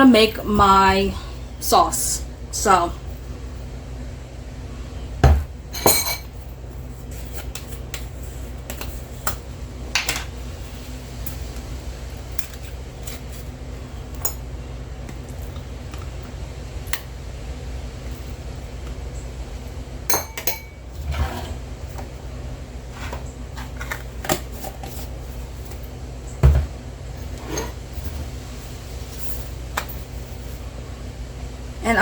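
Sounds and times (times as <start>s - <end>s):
dishes and utensils clinking: 5.3s - 6.4s, 20.1s - 21.6s.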